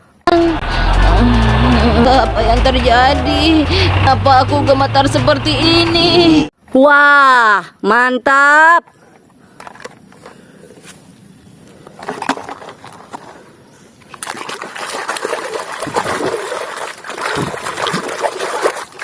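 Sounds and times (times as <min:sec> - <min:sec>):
water splashing and sloshing: 0:14.0 - 0:19.0.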